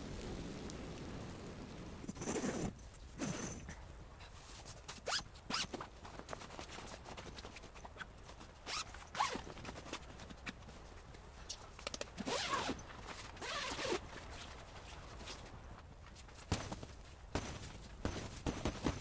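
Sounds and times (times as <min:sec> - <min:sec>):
rustling: 0:02.0 - 0:19.0
zipper pulled open: 0:02.1 - 0:03.7, 0:05.0 - 0:05.8, 0:08.7 - 0:09.6, 0:12.2 - 0:14.1.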